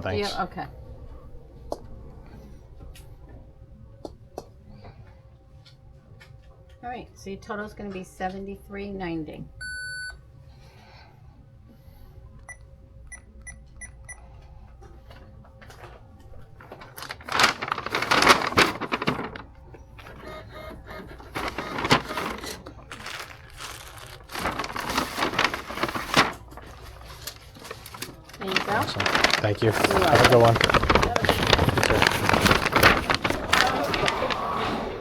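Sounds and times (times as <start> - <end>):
rustling and clattering: 14.8 - 20.3, 20.9 - 35.0.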